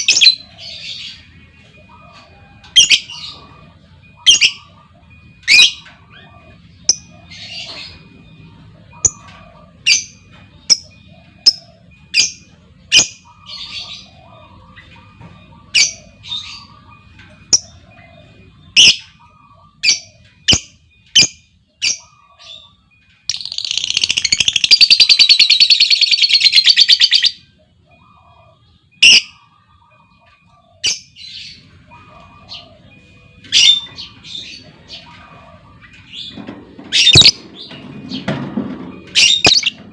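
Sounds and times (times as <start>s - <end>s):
lovebird chirping: 8.9s - 35.4s, 36.0s - 38.0s.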